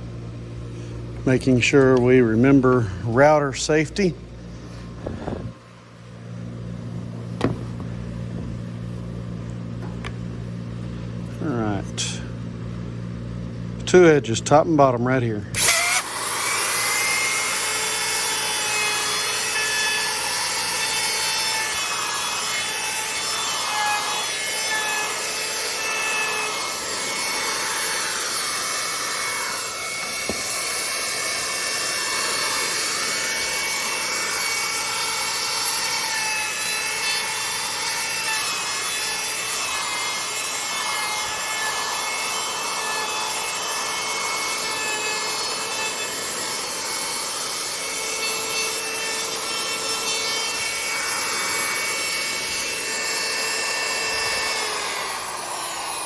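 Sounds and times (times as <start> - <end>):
router cutting wood: 15.6 - 56.0.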